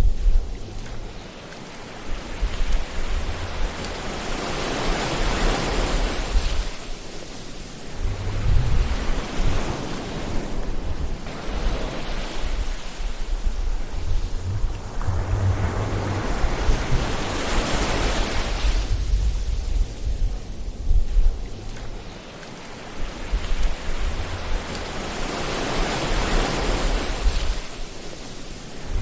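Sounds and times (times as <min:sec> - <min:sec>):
waves breaking and washing in: 0:00.0 - 0:29.0
low surf rumble: 0:07.5 - 0:22.3.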